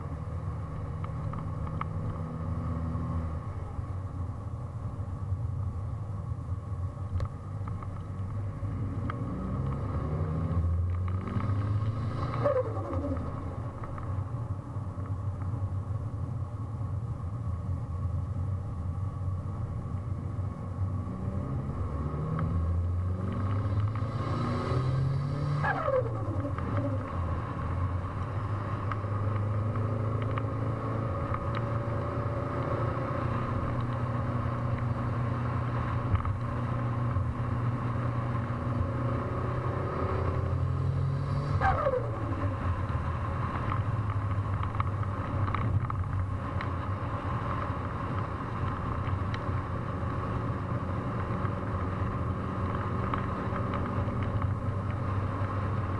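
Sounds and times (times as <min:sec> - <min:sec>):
car engine revving: 0:08.4 - 0:13.8, 0:20.9 - 0:46.2.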